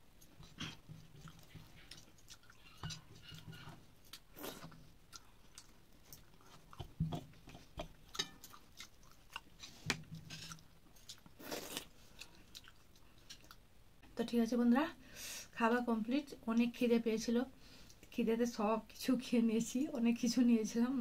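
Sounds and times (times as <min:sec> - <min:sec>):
wet chewing: 0:00.2 - 0:13.6.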